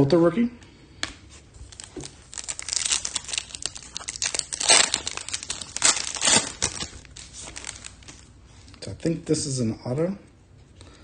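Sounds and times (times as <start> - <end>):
foil wrapper crinkling and tearing: 1.6 - 8.9.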